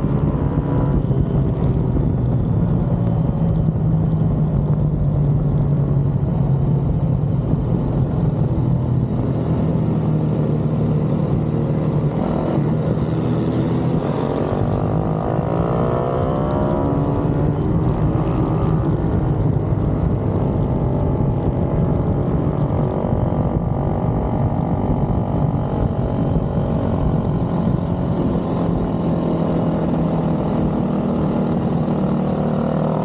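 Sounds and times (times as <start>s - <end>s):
pit bike engines revving: 6.0s - 15.9s, 23.0s - 33.0s.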